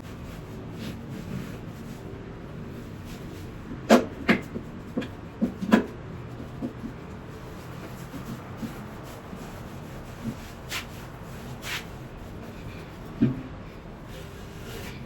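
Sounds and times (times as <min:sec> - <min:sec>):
rubbing and shuffling: 0:00.0 - 0:15.0.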